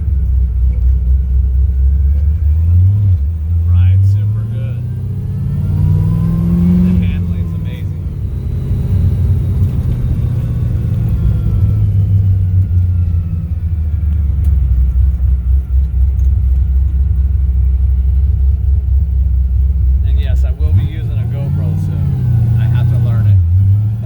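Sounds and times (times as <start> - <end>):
car engine low rumble: 0.0 - 24.0.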